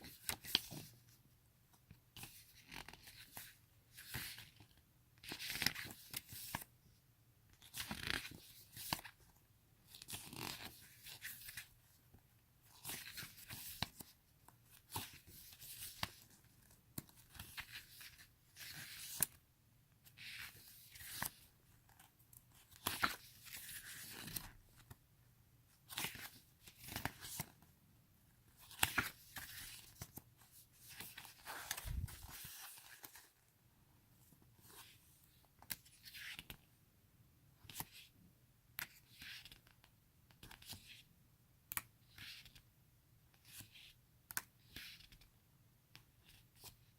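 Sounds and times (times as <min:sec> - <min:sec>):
photo book pages turning: 0:00.0 - 0:01.0, 0:02.2 - 0:06.7, 0:07.6 - 0:09.3, 0:12.7 - 0:14.1, 0:14.7 - 0:19.4, 0:20.0 - 0:25.0, 0:25.8 - 0:27.6, 0:28.5 - 0:33.4.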